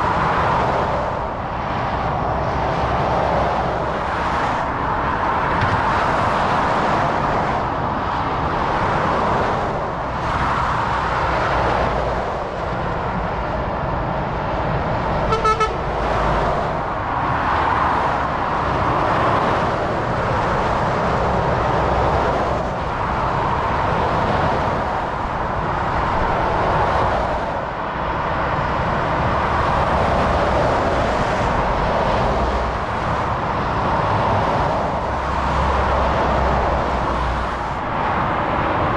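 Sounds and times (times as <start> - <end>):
motorway traffic rushing past: 0.0 - 38.9
vehicle horn toot: 15.3 - 15.9.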